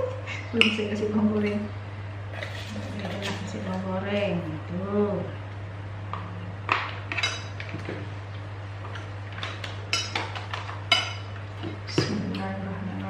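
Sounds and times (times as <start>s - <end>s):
steady low hum: 0.0s - 13.0s
cutlery clinking on dishes: 9.9s - 11.3s.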